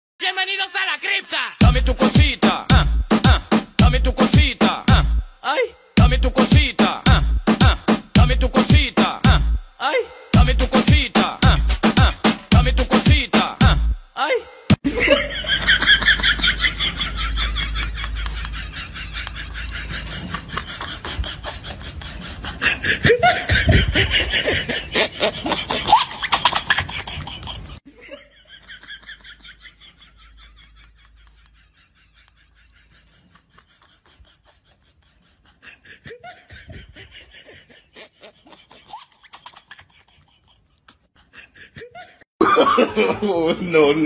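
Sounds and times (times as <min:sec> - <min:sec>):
people laughing: 0:14.8 - 0:39.2, 0:39.9 - 0:44.0.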